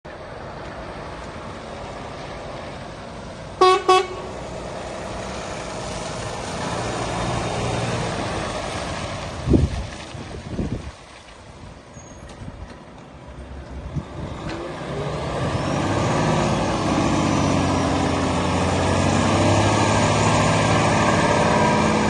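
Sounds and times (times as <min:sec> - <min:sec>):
diesel engine running: 0:00.1 - 0:09.6, 0:13.2 - 0:22.0
truck horn toots: 0:03.6 - 0:04.4.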